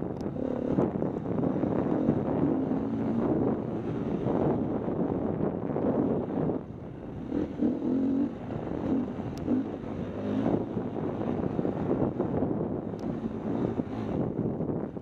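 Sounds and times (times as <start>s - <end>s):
wind noise on microphone: 0.0s - 15.0s
dirt bike engine revving: 7.1s - 12.2s.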